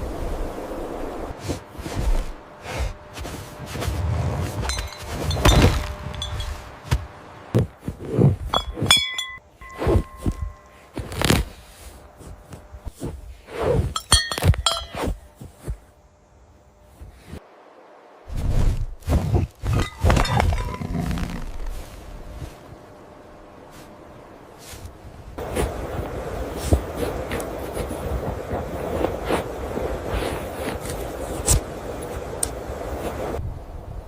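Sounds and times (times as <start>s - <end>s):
knocks and ringing clinks: 4.6s - 7.1s, 8.5s - 10.9s, 13.9s - 15.3s, 19.7s - 21.0s.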